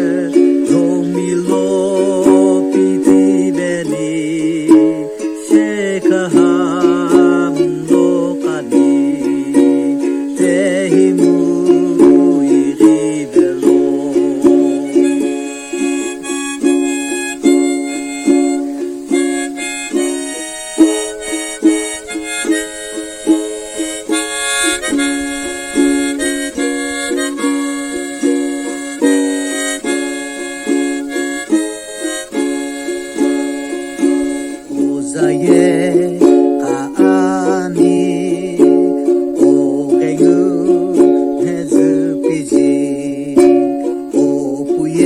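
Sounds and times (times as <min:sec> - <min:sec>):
ukulele strumming: 0:00.0 - 0:45.0
wavering tone: 0:13.6 - 0:36.3.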